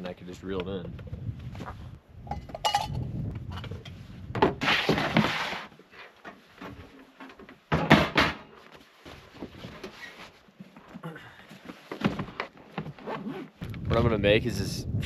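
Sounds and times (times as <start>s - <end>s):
rustling scrape: 3.6s - 7.2s, 8.6s - 10.6s.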